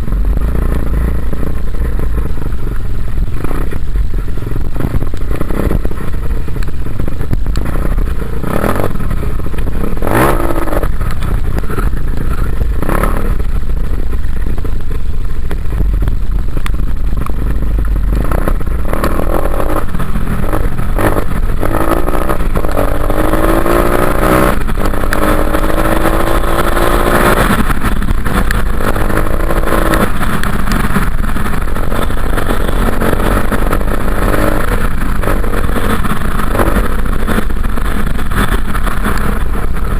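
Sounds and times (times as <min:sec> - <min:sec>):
dirt bike engine revving: 0:07.6 - 0:13.9, 0:17.9 - 0:39.9.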